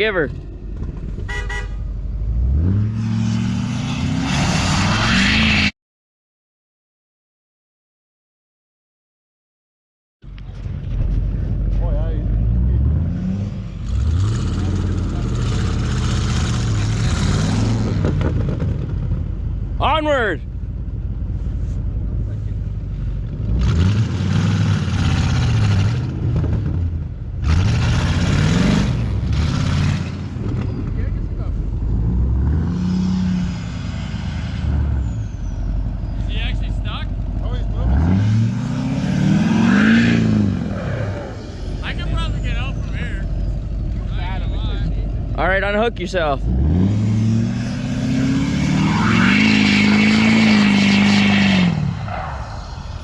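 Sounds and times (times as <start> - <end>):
truck engine revving: 0.0 - 5.7, 10.3 - 20.2, 22.2 - 53.0
rushing noise: 47.0 - 53.0.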